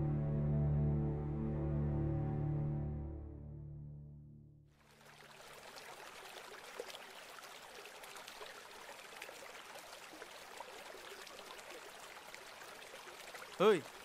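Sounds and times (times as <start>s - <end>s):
stream babbling: 4.8s - 14.0s.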